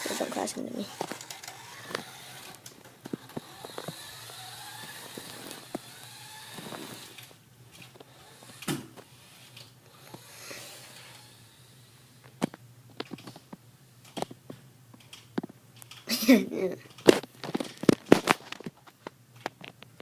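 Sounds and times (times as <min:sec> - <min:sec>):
toy car electric motor whirring: 0:00.0 - 0:12.2
toy car clicks and knocks: 0:00.9 - 0:08.8.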